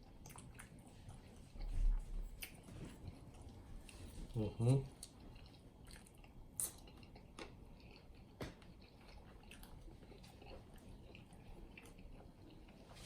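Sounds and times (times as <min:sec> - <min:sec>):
wet chewing mouth sounds: 0:00.0 - 0:13.0.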